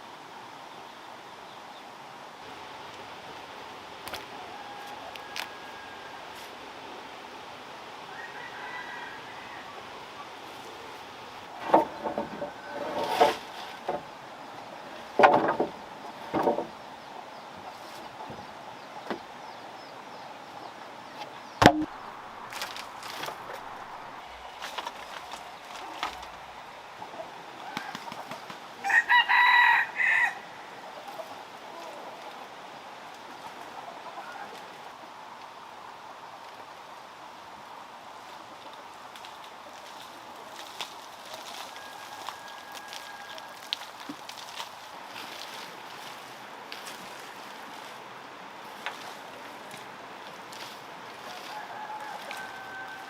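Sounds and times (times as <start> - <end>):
rooster crowing: 4.3 - 6.5, 8.1 - 10.0, 27.6 - 30.7, 41.5 - 43.9, 51.2 - 53.0
wooden knocks and clatters: 11.6 - 14.1, 15.2 - 16.8, 21.6 - 23.8.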